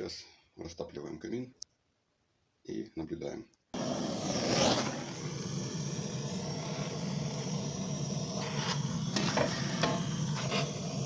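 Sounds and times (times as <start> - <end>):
fire popping: 3.8 - 11.0
steady low hum: 3.8 - 11.0
wood fire crackling: 3.8 - 11.0.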